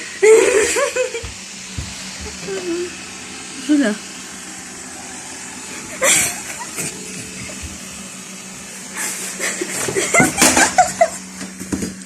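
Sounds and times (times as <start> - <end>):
robot vacuum cleaner humming: 0.0 - 12.0
person laughing: 0.2 - 1.3, 5.8 - 7.7, 9.0 - 11.4.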